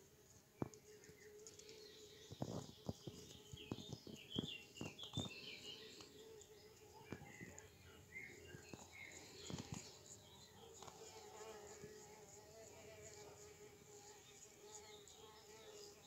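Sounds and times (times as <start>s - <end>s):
faint bird chirps: 0.6s - 13.3s.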